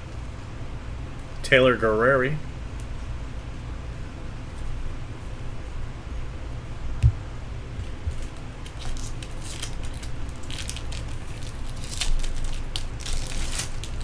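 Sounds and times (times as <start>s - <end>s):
steady low hum: 0.0s - 14.0s
short low thump: 7.0s - 7.3s
cards flicking and rustling: 7.8s - 14.0s.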